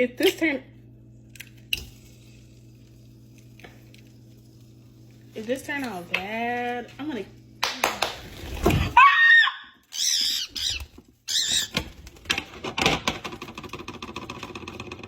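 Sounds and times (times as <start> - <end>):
bird squawking: 9.9 - 11.8.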